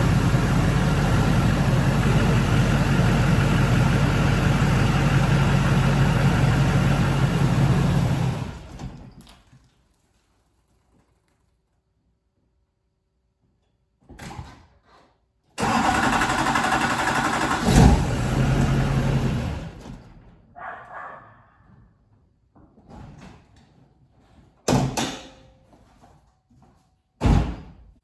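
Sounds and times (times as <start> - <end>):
diesel engine starting: 0.0 - 9.3, 15.6 - 20.4.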